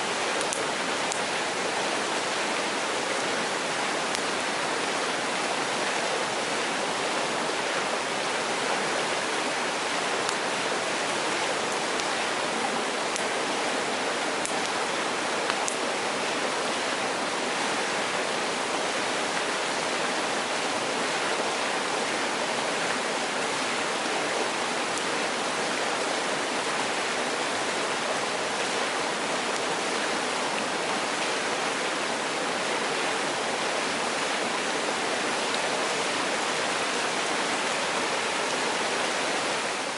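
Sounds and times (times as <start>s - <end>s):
stream rushing over rocks: 0.0s - 39.9s
faint sharp clicks: 0.4s - 1.2s.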